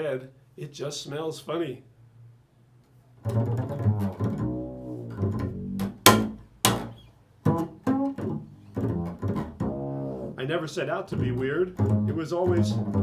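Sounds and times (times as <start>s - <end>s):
plucked string attacks: 3.2s - 10.4s
low string instrument notes: 3.2s - 13.0s.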